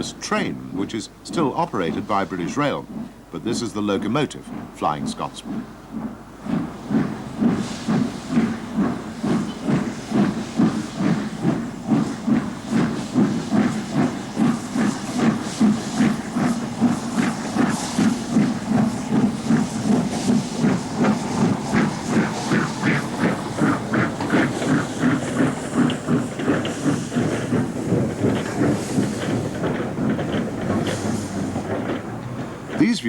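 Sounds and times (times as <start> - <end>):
steam locomotive chuffing: 0.0 - 33.0
steam hiss: 6.6 - 31.8.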